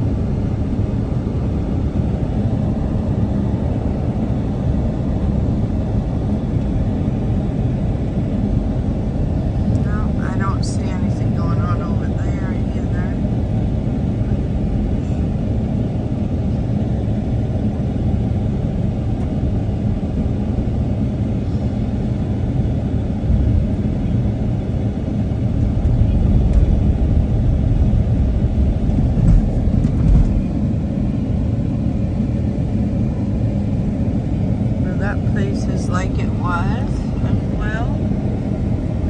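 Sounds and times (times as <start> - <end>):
car road and engine rumble: 0.0 - 39.0
car bumps: 28.9 - 30.6.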